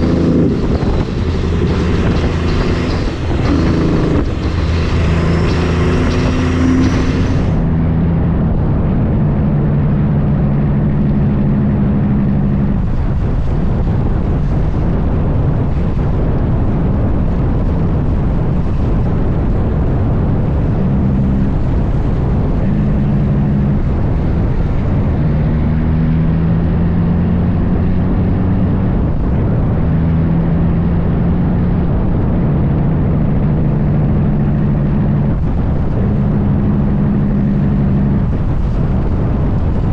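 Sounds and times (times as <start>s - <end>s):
diesel truck engine running: 0.0s - 25.7s.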